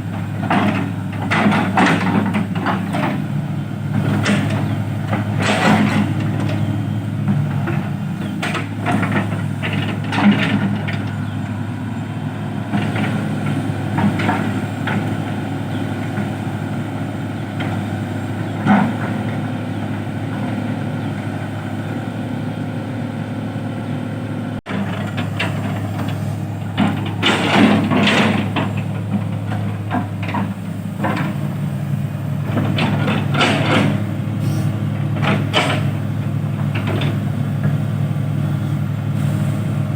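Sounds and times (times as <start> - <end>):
diesel engine running: 0.0 - 39.9
knocks and clatters: 24.7 - 31.4, 32.5 - 34.0, 35.1 - 36.0.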